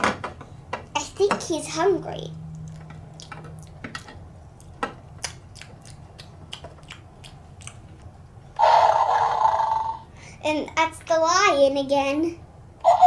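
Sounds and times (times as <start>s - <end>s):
plastic toys clicking and tapping: 0.0s - 1.8s, 2.6s - 5.8s.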